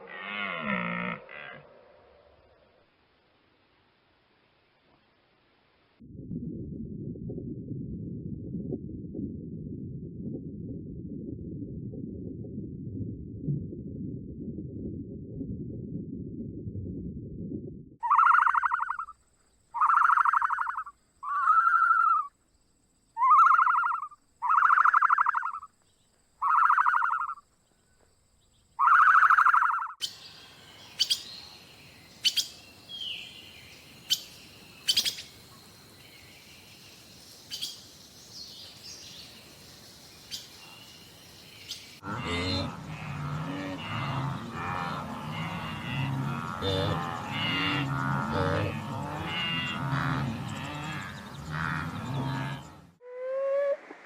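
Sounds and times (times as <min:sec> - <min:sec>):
low rumble: 0:06.0 - 0:18.0
buzzy animal call: 0:18.0 - 0:19.1, 0:19.8 - 0:22.3, 0:23.2 - 0:25.7, 0:28.8 - 0:30.0, 0:42.0 - 0:53.9
bird chirps: 0:18.0 - 0:19.2, 0:19.8 - 0:22.3, 0:23.2 - 0:27.4, 0:28.4 - 0:42.0.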